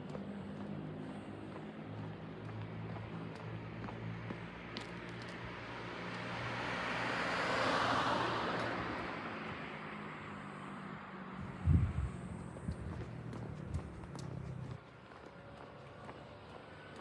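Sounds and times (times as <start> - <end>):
car passing by: 3.0 - 14.8.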